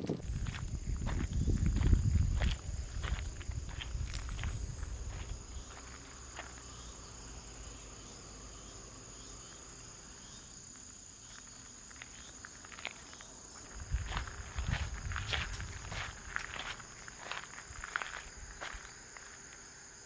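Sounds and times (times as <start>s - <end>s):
footsteps: 0.0s - 6.6s, 11.3s - 19.5s
crickets trilling: 0.0s - 20.0s.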